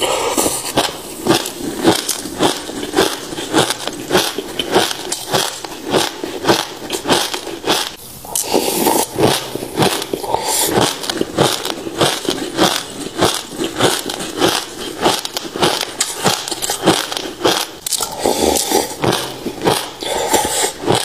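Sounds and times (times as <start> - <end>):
crunching seeds being chewed: 0.0 - 21.0.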